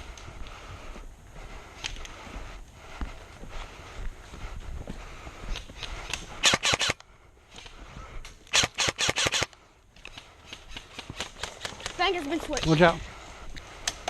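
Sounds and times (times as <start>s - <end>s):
airsoft guns firing: 6.4s - 7.0s, 8.5s - 9.5s.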